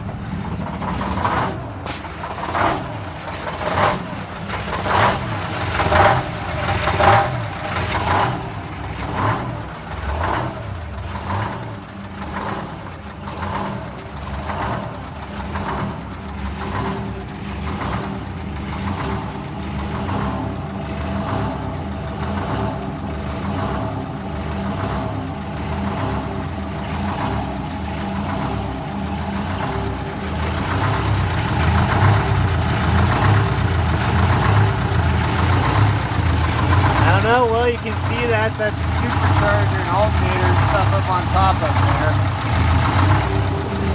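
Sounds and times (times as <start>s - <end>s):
diesel engine idling unevenly: 0.0s - 43.9s.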